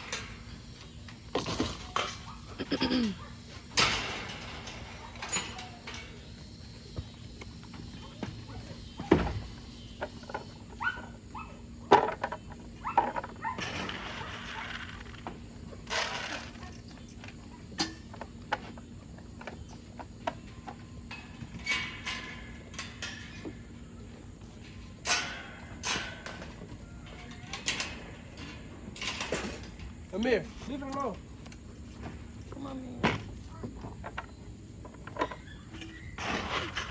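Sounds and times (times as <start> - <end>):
dog sounds: 10.7 - 12.0.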